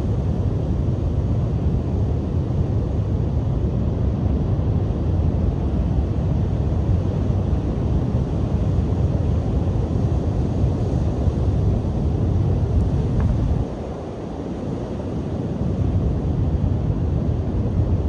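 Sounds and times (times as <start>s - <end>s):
wind buffeting microphone: 5.9s - 18.0s.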